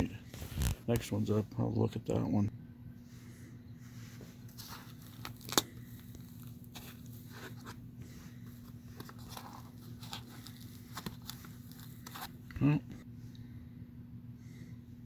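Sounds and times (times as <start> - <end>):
steady low hum: 0.0 - 15.0
packaging rustling and clicking: 4.5 - 7.8, 8.4 - 12.5.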